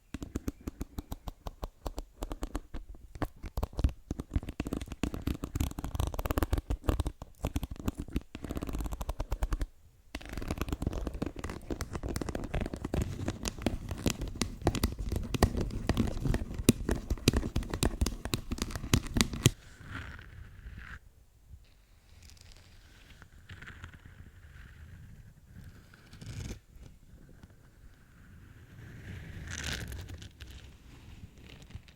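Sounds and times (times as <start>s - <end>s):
fingernails tapping and scratching: 0.1s - 19.6s.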